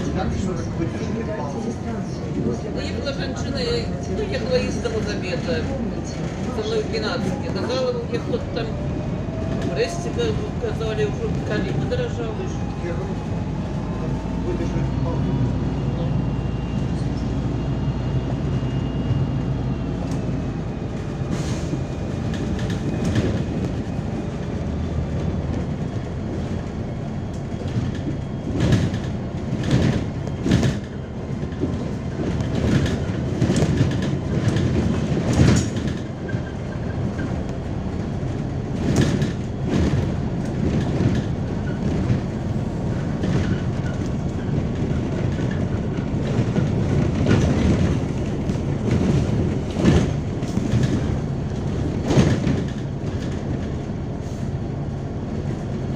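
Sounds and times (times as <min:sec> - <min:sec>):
bus engine and drivetrain hum: 0:00.0 - 0:55.9
body and suspension rattling: 0:21.8 - 0:53.9.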